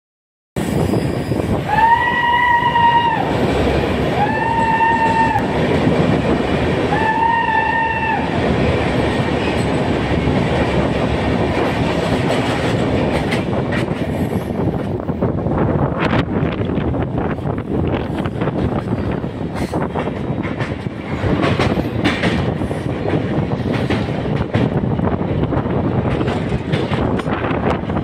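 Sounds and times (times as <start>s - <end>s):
train rumbling: 0.6s - 28.0s
train horn blasts: 1.7s - 3.3s, 4.2s - 5.5s, 6.9s - 8.4s.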